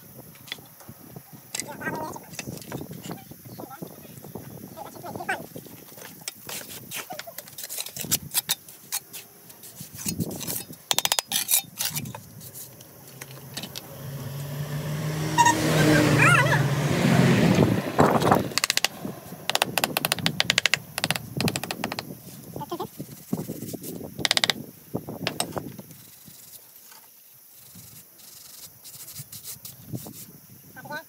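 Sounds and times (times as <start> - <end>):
motor vehicle passing by: 13.3 - 21.0
sharp taps and clicks: 18.2 - 22.1.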